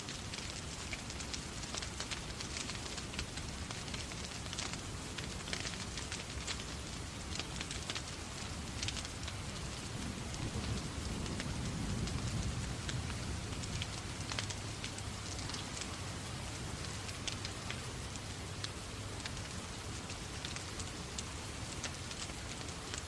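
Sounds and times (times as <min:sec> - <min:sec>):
fireplace fire crackling and popping: 0:00.0 - 0:23.0
rain hiss: 0:00.0 - 0:23.0.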